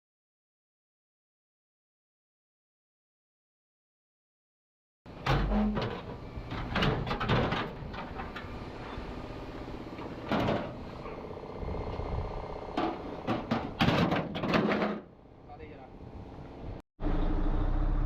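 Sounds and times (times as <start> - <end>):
metal knocks and clanks: 5.2 - 8.5, 10.0 - 10.8, 12.8 - 15.1.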